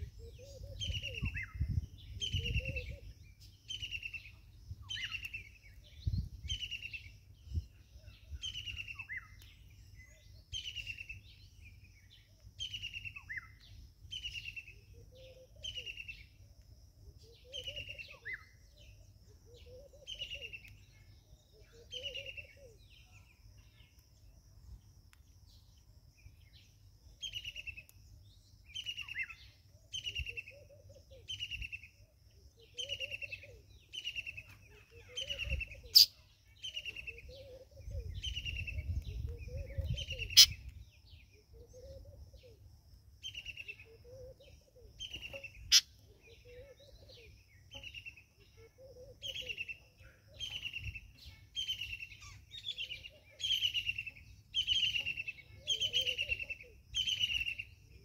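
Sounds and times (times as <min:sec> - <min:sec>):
birds chirping: 0:17.2 - 0:42.6, 0:43.2 - 0:58.0.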